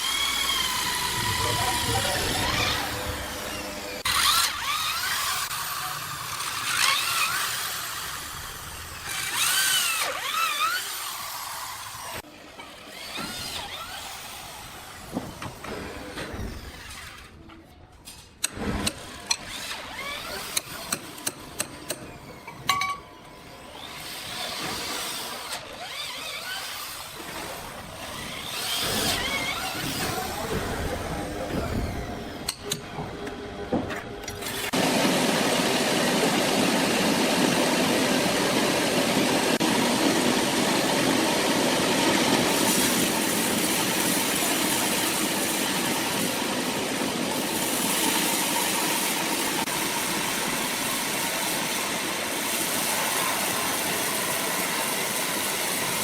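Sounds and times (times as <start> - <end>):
sawmill saw whining through log: 0.0 - 17.5, 18.4 - 56.0.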